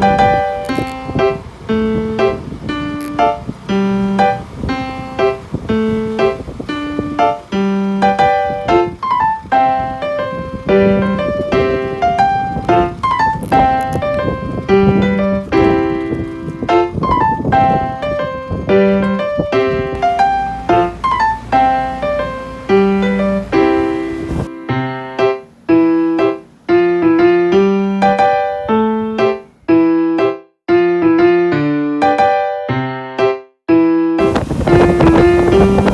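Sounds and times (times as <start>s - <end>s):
noisy low layer: 0.0s - 27.6s
electric piano rhythmic notes: 0.0s - 35.9s.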